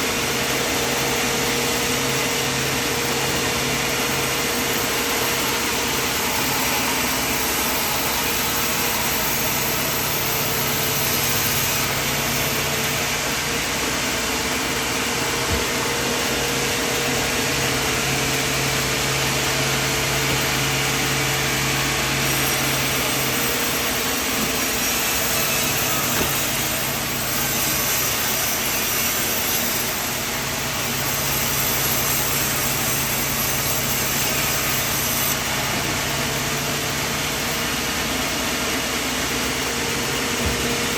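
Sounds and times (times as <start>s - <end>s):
saw cutting noise: 0.0s - 40.9s.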